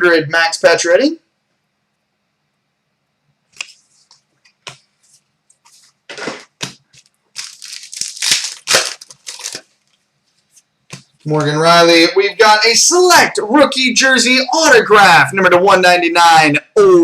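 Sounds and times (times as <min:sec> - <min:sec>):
cards and packaging rustling: 0:05.6 - 0:10.0.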